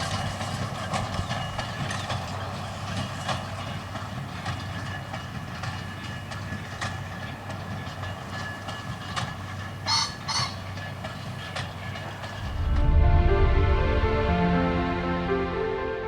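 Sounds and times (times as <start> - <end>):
low mechanical rumble: 12.4 - 16.0.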